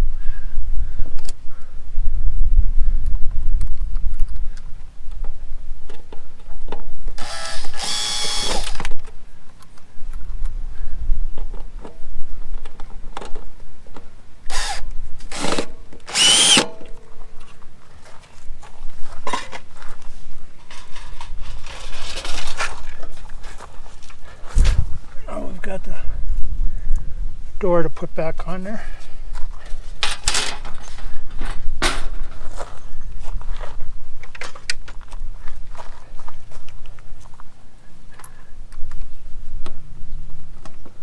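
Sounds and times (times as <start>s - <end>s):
power drill driving screws: 7.2s - 8.9s, 14.5s - 16.9s.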